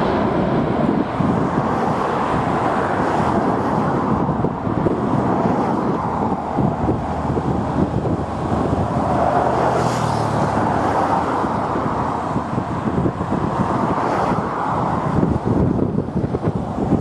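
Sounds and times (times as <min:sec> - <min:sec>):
car passing: 0:00.0 - 0:17.0
road traffic noise: 0:00.0 - 0:17.0
wind buffeting microphone: 0:00.0 - 0:17.0.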